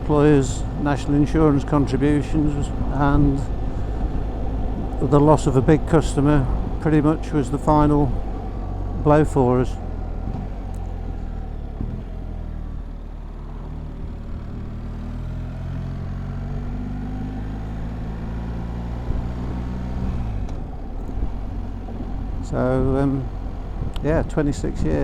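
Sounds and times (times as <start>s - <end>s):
motorcycle engine on the road: 0.0s - 25.0s
wind noise: 21.0s - 25.0s.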